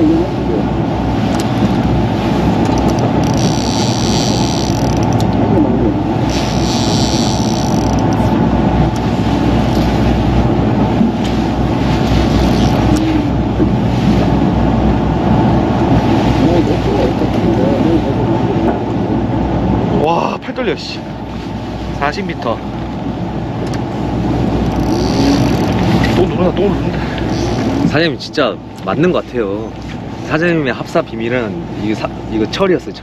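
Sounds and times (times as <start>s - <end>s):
higher buzzing: 0.0s - 10.8s, 24.4s - 26.4s, 27.2s - 28.0s
boat engine rumble: 0.0s - 33.0s.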